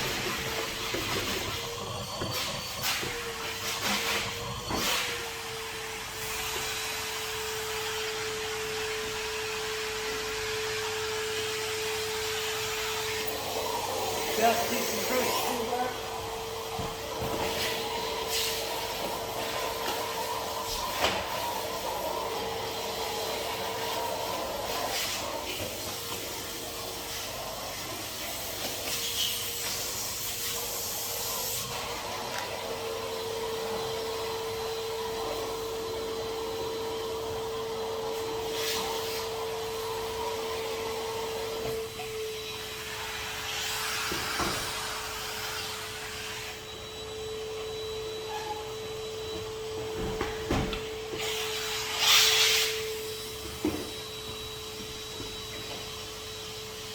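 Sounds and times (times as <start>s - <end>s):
vacuum tool knocking: 0.0s - 5.2s, 13.1s - 22.3s, 44.0s - 44.9s, 49.2s - 51.4s, 52.7s - 56.2s
vacuum cleaner running: 0.0s - 56.9s.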